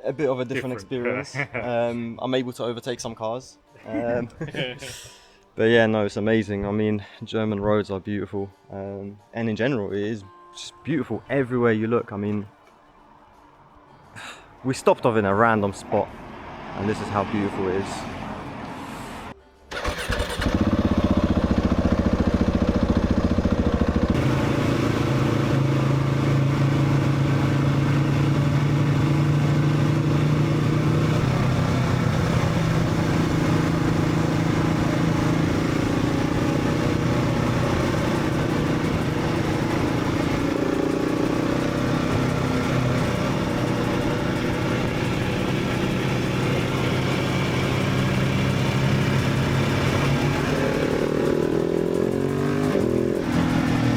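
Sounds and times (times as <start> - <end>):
motorcycle engine running: 19.8 - 53.9.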